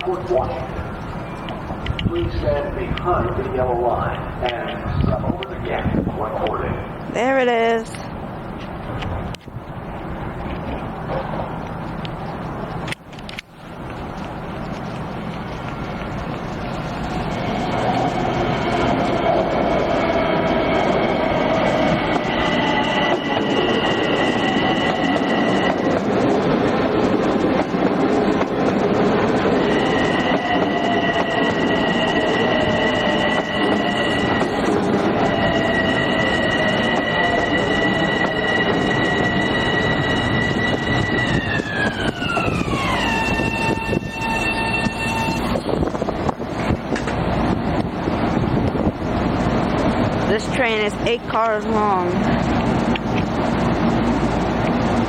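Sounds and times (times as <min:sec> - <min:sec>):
high-pitched train tones: 0:00.0 - 0:08.2, 0:14.4 - 0:46.6, 0:48.4 - 0:55.0
train cars rumbling: 0:00.0 - 0:55.0
train motor whine: 0:14.2 - 0:47.2.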